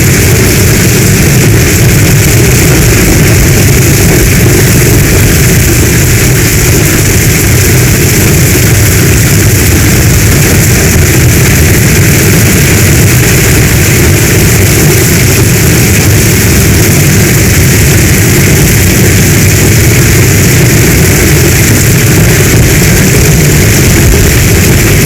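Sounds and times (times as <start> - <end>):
deep rumble: 0.0 - 25.0
heavy rain hissing: 0.0 - 25.0.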